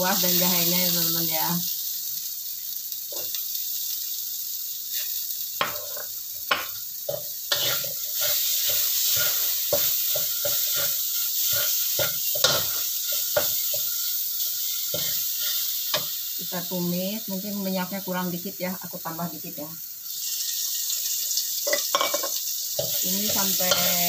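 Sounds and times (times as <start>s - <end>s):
paste sizzling in hot oil: 0.0s - 24.0s
metal spatula scraping a pan: 4.9s - 16.1s, 20.4s - 24.0s.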